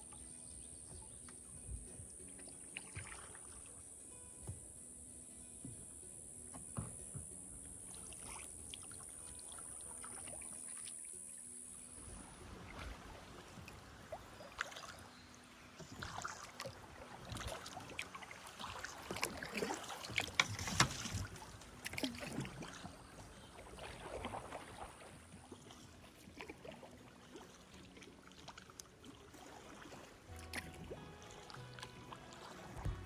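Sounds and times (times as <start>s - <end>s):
paddle splashing in water: 0.0s - 33.0s
water dripping: 15.7s - 29.4s.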